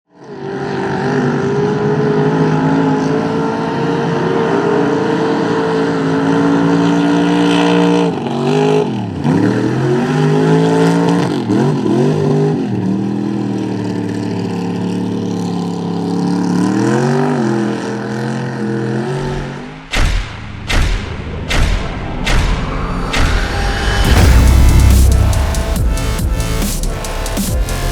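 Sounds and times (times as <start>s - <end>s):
heavy thumps: 19.9s - 27.9s
truck engine revving hard: 22.2s - 27.9s.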